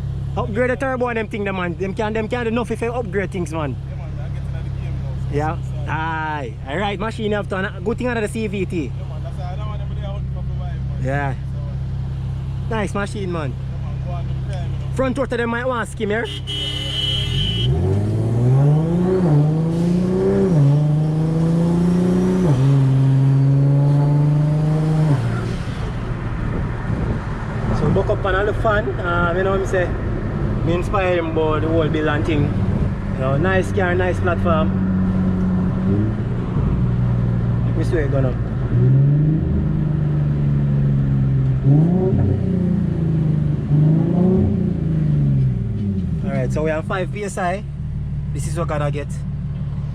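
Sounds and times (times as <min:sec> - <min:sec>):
car engine accelerating: 0:16.2 - 0:49.9.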